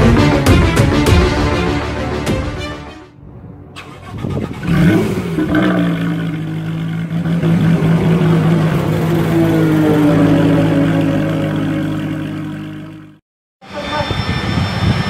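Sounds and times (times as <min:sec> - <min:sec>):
racing car engine revving: 0:04.3 - 0:13.2.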